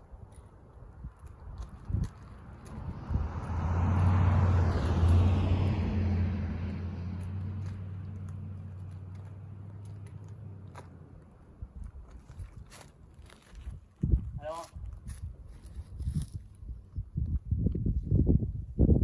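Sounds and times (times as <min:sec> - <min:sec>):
vehicle engine hum passing: 0:00.4 - 0:13.2.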